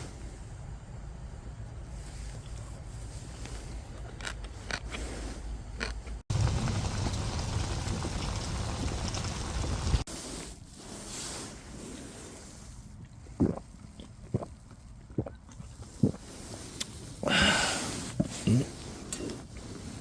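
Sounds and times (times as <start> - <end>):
wind buffeting microphone: 6.3 - 10.0.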